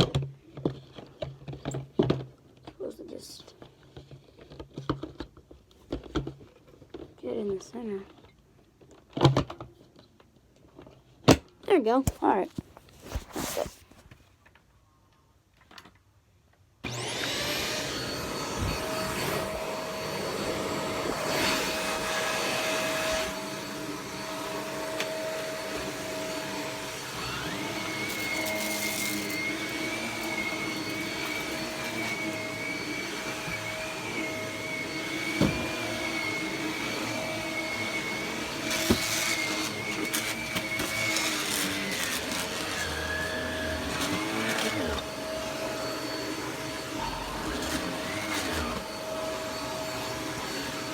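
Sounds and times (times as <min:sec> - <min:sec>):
vacuum cleaner motor hum: 0:16.8 - 0:50.9.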